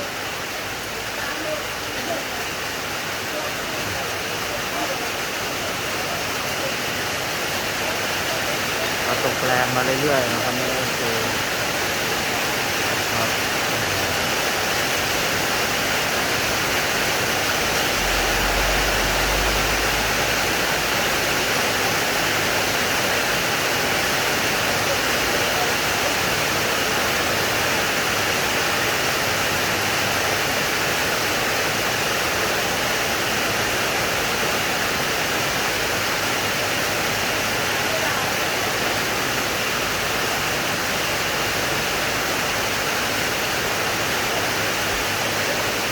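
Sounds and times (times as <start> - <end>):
heavy rain falling: 0.0 - 45.9
low rumble: 17.2 - 21.7.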